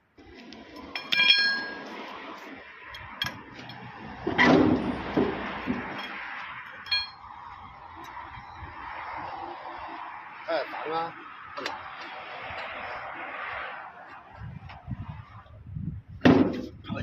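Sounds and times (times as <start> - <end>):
metal tools clinking: 0.9 - 1.8, 5.9 - 7.2
struck steel ringing: 1.0 - 1.8, 5.9 - 7.3.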